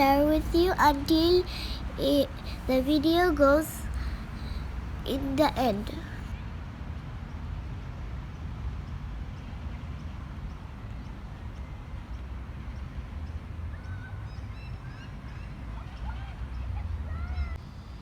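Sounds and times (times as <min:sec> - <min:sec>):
birds chirping: 0:00.0 - 0:06.3.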